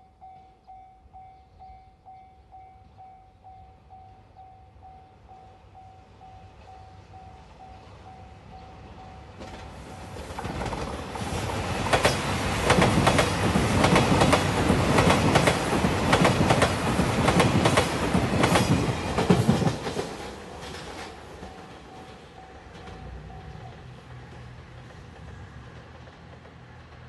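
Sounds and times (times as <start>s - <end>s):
level crossing warning bell: 0.0s - 10.2s
train wheels clicking over rail joints: 9.3s - 27.0s.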